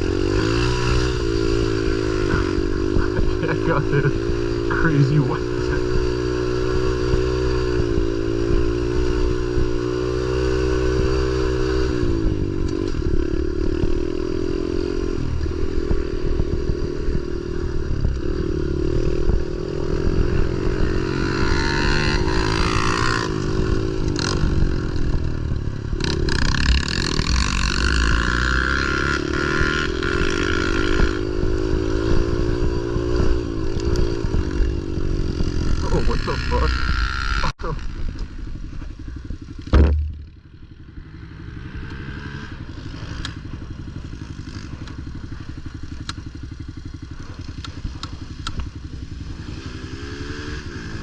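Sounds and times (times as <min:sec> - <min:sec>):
pit bike engine revving: 0:00.0 - 0:51.0
sharp knocks: 0:39.7 - 0:40.4.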